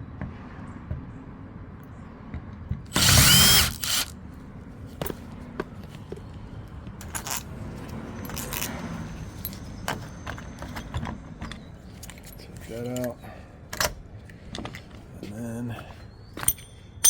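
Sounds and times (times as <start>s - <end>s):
power drill bursts: 2.9s - 4.1s
metal parts clicking and knocking: 7.0s - 7.5s, 8.2s - 8.8s, 16.4s - 17.0s.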